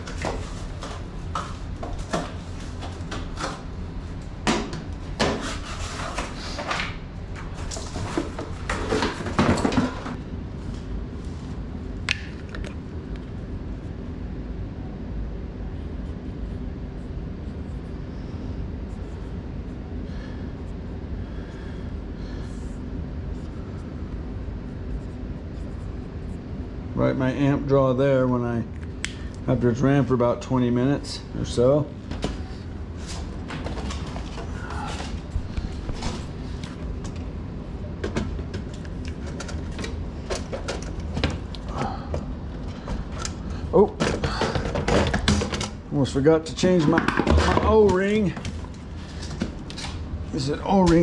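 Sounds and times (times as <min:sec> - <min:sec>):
faint electrical drone: 0:00.0 - 0:51.0
low machinery hum: 0:00.0 - 0:51.0
clicks and knocks of parts: 0:38.0 - 0:45.8.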